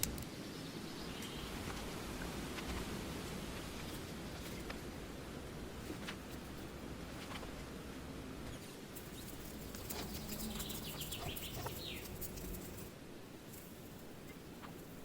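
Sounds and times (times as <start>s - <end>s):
small clicks: 0.0s - 0.3s
faint outdoor background noise: 0.0s - 15.0s
bird calling high chirps: 8.5s - 12.8s.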